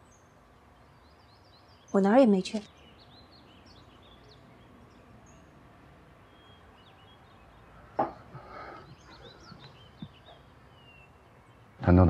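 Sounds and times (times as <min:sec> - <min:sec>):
small birds chirping: 0:00.0 - 0:12.0
sharp knock: 0:08.0 - 0:08.3.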